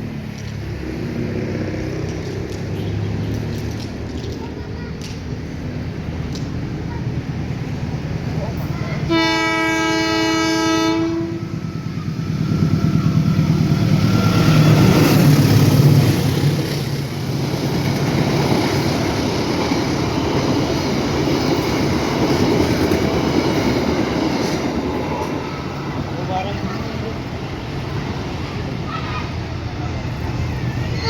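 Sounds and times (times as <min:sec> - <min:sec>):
locomotive engine rumbling: 0:00.0 - 0:31.0
train wagons clickety-clack: 0:00.0 - 0:31.0
locomotive horn blast: 0:09.0 - 0:11.8.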